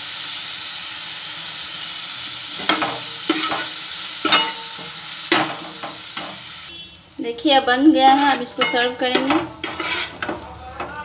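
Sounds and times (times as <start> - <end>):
chillies sizzling in hot oil: 0.0 - 11.0
spatula clattering against pan: 2.6 - 6.4, 8.1 - 11.0
spatula stirring and scraping: 8.1 - 11.0.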